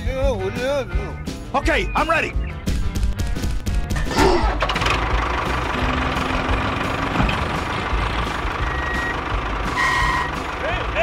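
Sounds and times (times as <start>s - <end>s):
engine running steadily: 3.0s - 11.0s.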